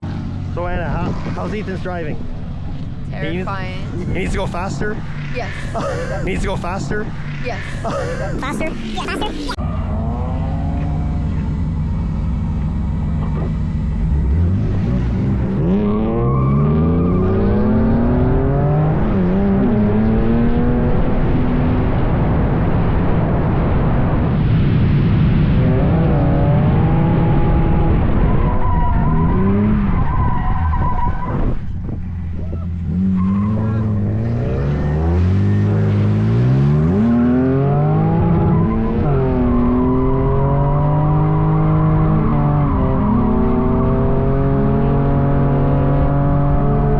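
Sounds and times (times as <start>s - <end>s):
loud steady rushing noise: 3.2s - 9.6s
car engine revving hard: 13.2s - 23.3s, 25.4s - 30.7s, 32.8s - 46.9s.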